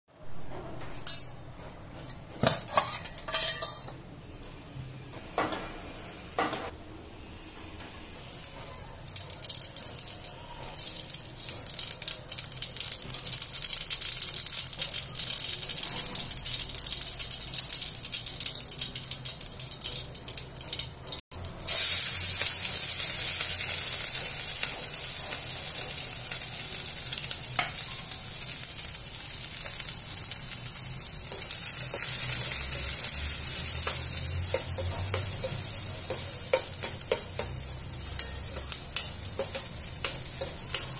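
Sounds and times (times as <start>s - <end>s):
onions sizzling in hot oil: 8.2s - 40.9s
seeds crackling and popping: 8.4s - 21.8s, 26.4s - 40.9s.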